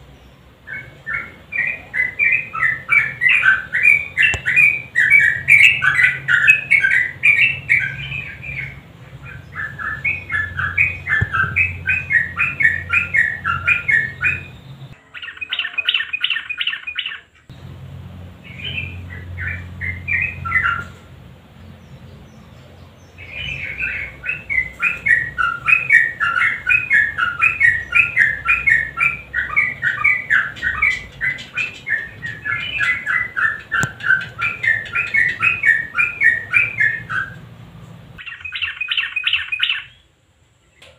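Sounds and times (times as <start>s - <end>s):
low hum: 0.0s - 15.0s, 17.5s - 38.2s
bulbul singing warbling notes: 0.7s - 17.2s, 23.2s - 37.4s.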